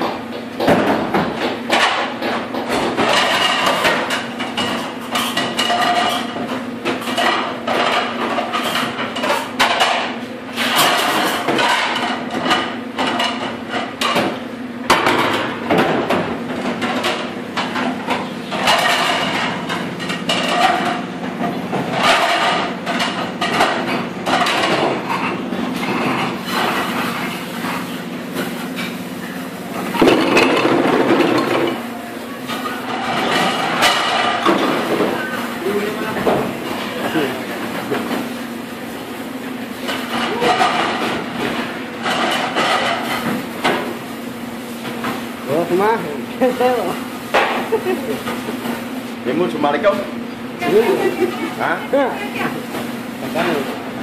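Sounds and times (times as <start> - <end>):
plates and dish racks clattering: 0.0 - 54.0.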